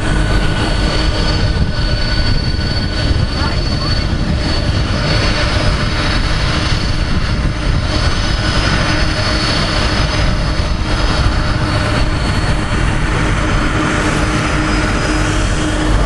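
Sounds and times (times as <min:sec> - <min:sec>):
jet engines rumbling and whining: 0:00.0 - 0:16.0.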